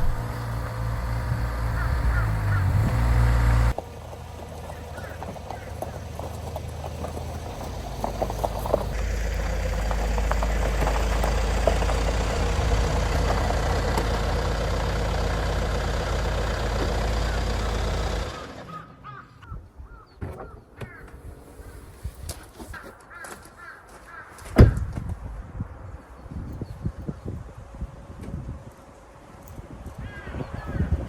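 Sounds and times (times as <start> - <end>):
vehicle engine rumbling: 0.0 - 23.1, 23.8 - 31.0
crows cawing: 1.4 - 3.4, 4.6 - 6.6, 14.6 - 21.2, 22.8 - 24.6, 30.0 - 31.0.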